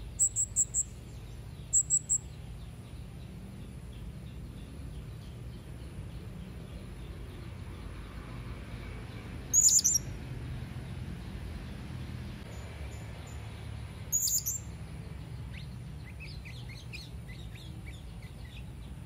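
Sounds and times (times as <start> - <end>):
parrot chirping: 0.2 - 1.0, 1.7 - 2.3, 9.5 - 10.1, 14.1 - 14.7
shrill high-pitched bird notes: 9.6 - 10.1.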